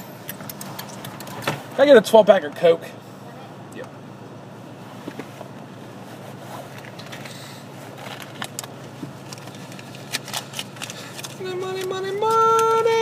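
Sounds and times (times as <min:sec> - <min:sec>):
faint clicks and rustles: 0:04.9 - 0:12.8.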